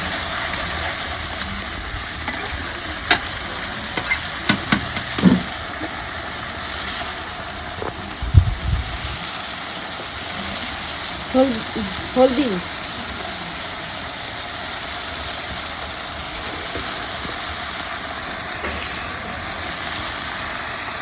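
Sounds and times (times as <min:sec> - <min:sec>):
food sizzling in hot oil: 0:00.0 - 0:21.0
spatula knocking against pan: 0:03.1 - 0:03.3, 0:04.0 - 0:05.5.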